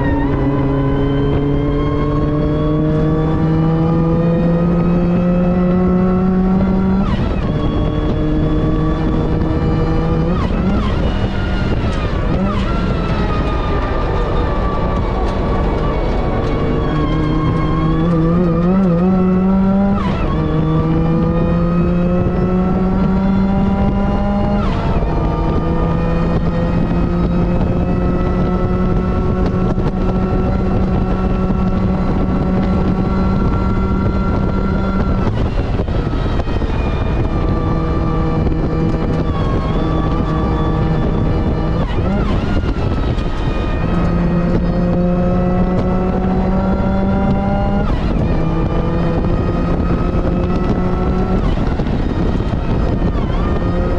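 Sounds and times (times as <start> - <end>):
car engine at full throttle: 0.0 - 53.9
gear upshifts: 0.0 - 53.9.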